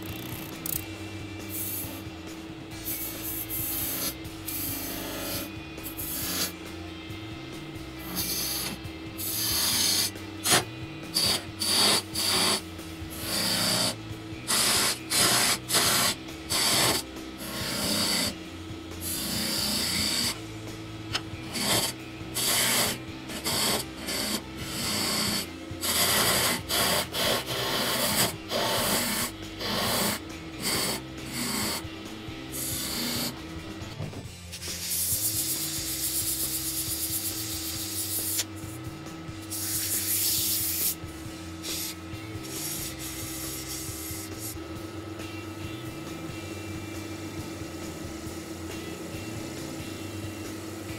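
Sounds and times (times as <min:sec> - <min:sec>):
tool scraping spinning wood: 0:08.0 - 0:18.4, 0:19.0 - 0:20.4, 0:21.4 - 0:31.8
wood lathe humming: 0:11.2 - 0:18.4, 0:19.0 - 0:20.6, 0:21.4 - 0:33.4.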